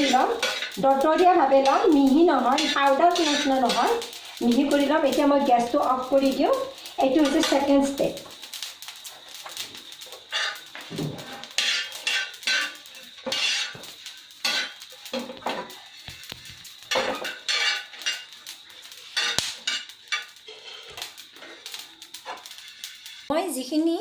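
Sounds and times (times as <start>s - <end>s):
metal utensils clattering on pots: 0.0s - 5.6s, 10.2s - 21.1s.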